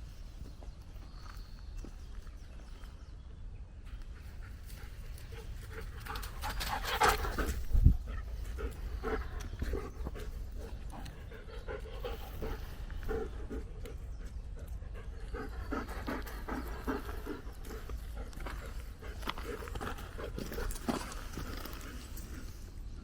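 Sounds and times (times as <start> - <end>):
dog panting: 4.2 - 22.8.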